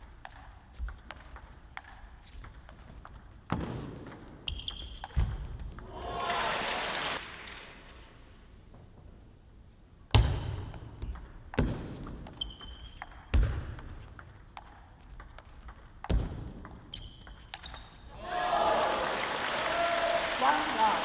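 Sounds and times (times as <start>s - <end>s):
ping pong ball clicking: 0.0s - 5.9s, 10.5s - 18.1s.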